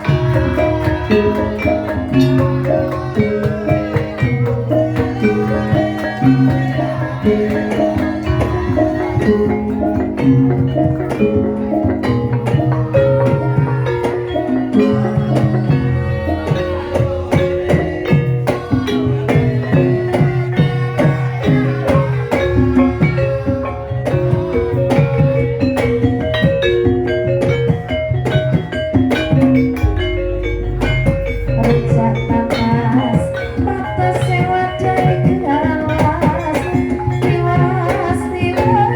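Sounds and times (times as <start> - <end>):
drum strokes: 0.0 - 38.9
gamelan ensemble playing: 0.0 - 38.9
sharp metallic strikes: 29.1 - 34.6.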